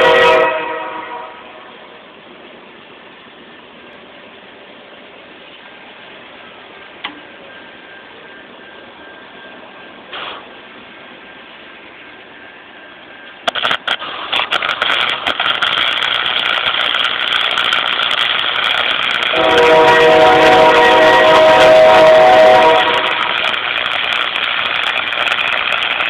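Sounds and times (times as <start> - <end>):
welding arc crackling: 13.4 - 26.0.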